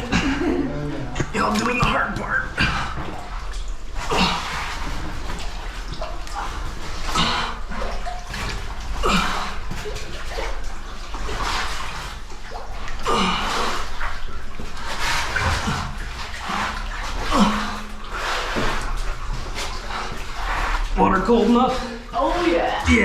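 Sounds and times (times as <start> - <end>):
water splashing and sloshing: 0.0 - 23.0.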